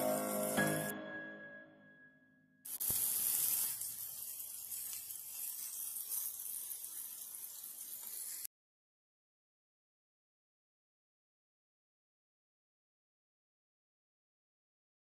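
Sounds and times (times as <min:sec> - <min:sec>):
fries deep-frying in oil: 0:02.7 - 0:08.5.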